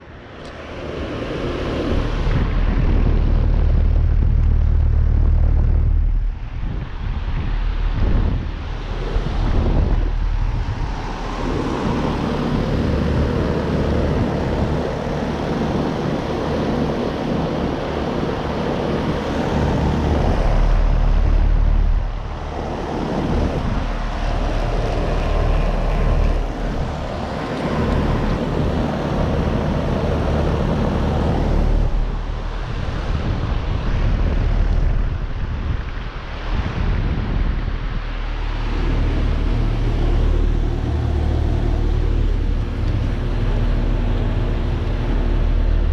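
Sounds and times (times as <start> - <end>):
fan whoosh: 0.0 - 45.9
low compressor hum: 0.0 - 45.9.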